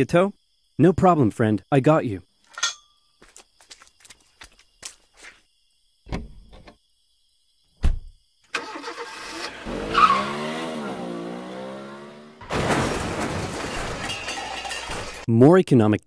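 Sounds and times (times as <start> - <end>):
cartoon car engine revving: 8.6 - 13.0.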